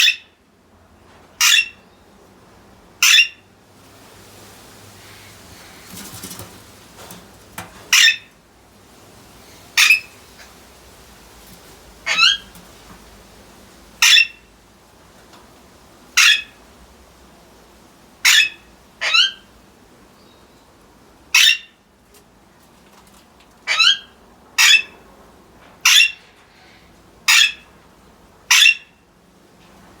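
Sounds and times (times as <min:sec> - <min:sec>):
parakeets squawking: 0:01.4 - 0:01.7, 0:03.0 - 0:03.4, 0:07.9 - 0:08.3, 0:09.8 - 0:10.2, 0:12.0 - 0:12.5, 0:14.0 - 0:14.4, 0:16.2 - 0:16.5, 0:18.2 - 0:19.4, 0:21.4 - 0:21.6, 0:23.7 - 0:24.9, 0:25.9 - 0:26.2, 0:27.3 - 0:27.6, 0:28.5 - 0:28.8.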